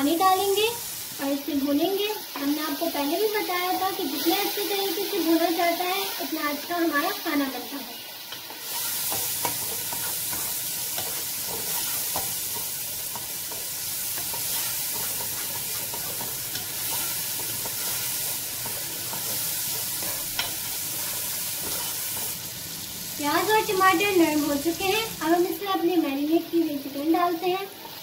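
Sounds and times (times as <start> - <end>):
masala sizzling in a pot: 0.0 - 28.0
spatula scraping a pot: 8.6 - 22.4.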